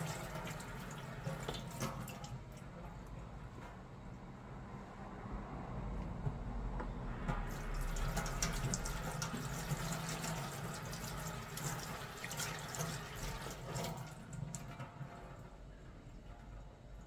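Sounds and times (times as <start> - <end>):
tap water splashing into sink: 0.0 - 2.6, 7.3 - 15.3.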